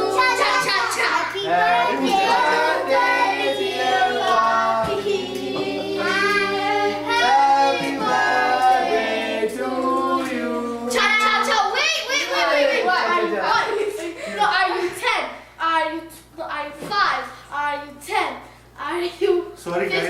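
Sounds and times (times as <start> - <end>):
voices singing together: 0.0 - 13.4.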